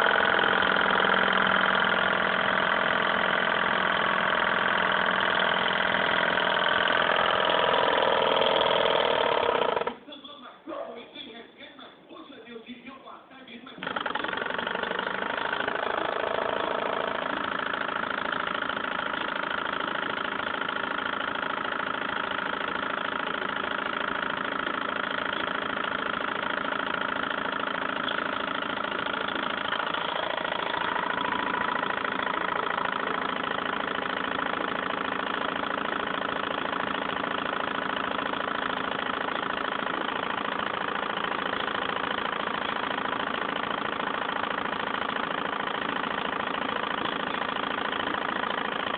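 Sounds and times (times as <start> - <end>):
stirling engine whirring: 0.0 - 10.0, 22.8 - 48.9.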